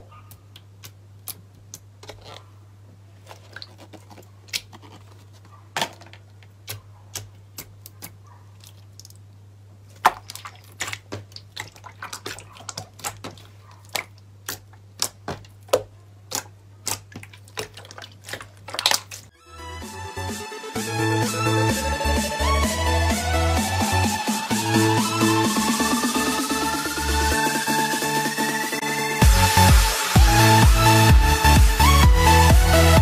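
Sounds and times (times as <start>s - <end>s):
slime clicking and popping: 10.0s - 19.3s.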